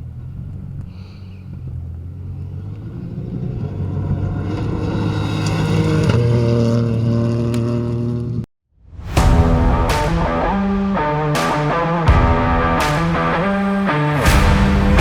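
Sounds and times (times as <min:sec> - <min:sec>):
rally car engine at high revs: 0:00.0 - 0:08.5
sharp cracks: 0:09.7 - 0:15.0.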